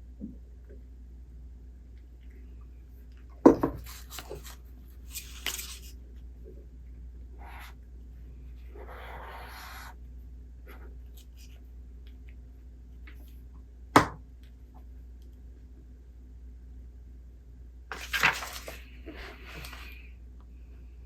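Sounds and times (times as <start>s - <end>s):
low steady hum: 0.0s - 21.0s
book page turning: 3.8s - 6.0s, 17.9s - 20.0s.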